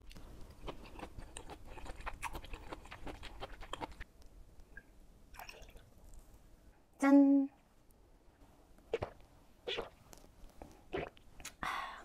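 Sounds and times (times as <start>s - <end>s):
close chewing with wet mouth clicks: 0.1s - 4.1s
liquid pouring into small glass: 5.3s - 5.9s.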